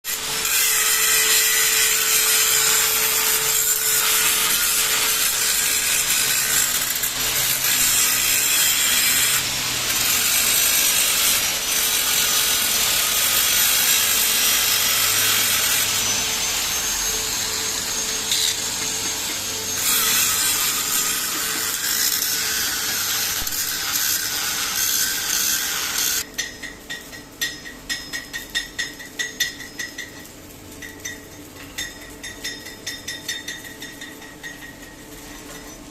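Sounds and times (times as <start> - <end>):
welding arc crackling: 0.1 - 26.3.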